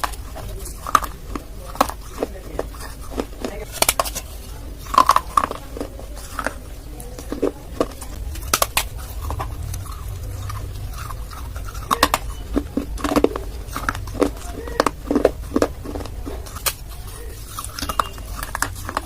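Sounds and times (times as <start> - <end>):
clay being chewed: 0.0 - 19.0
low hum: 3.8 - 19.0.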